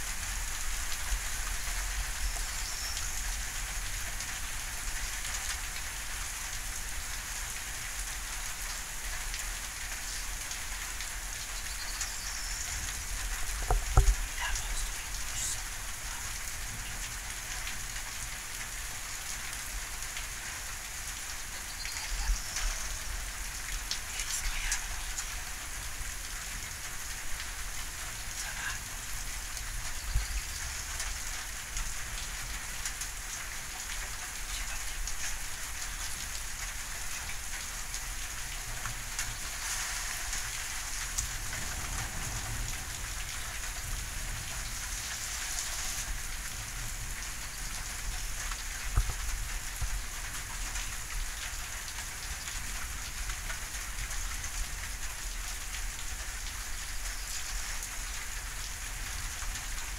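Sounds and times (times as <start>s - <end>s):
steady rain: 0.0s - 59.9s
raindrop taps: 13.3s - 15.5s, 47.2s - 54.1s.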